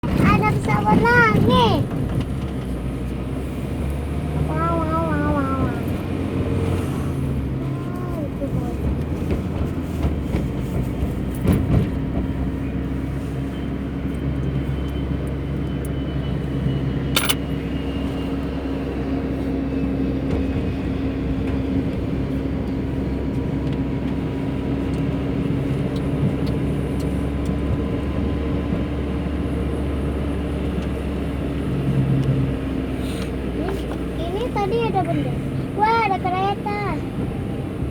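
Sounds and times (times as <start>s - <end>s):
car interior driving hum: 0.0s - 16.4s, 19.9s - 37.9s.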